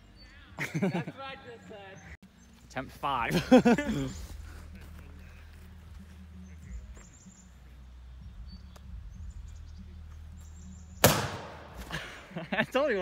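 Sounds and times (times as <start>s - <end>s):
bird chirps: 5.3s - 11.1s.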